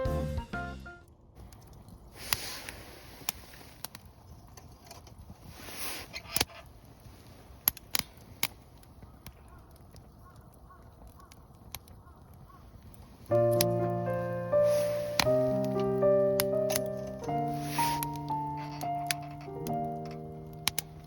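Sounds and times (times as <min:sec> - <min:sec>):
campfire crackling: 0:01.1 - 0:21.0
faint hiss: 0:02.1 - 0:04.0, 0:13.2 - 0:21.0
rustling: 0:02.2 - 0:08.8, 0:12.8 - 0:21.0.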